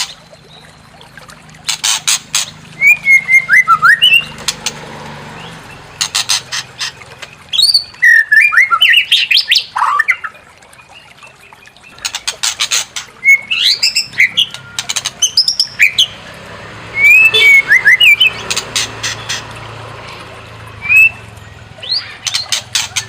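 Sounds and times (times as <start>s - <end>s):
bird singing with clicks and whistles: 1.7s - 4.8s, 5.4s - 16.2s, 17.0s - 19.4s, 20.8s - 23.0s.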